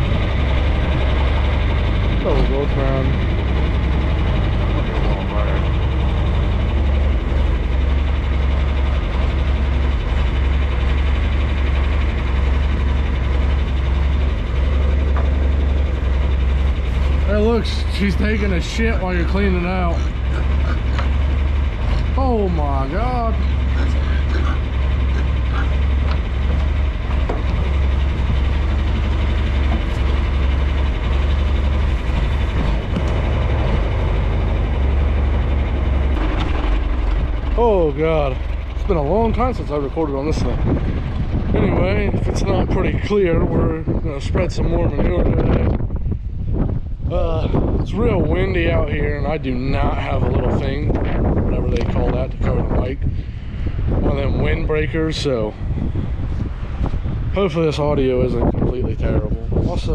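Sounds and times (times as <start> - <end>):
farm machinery engine idling: 0.0 - 59.9
wind buffeting microphone: 0.0 - 59.9.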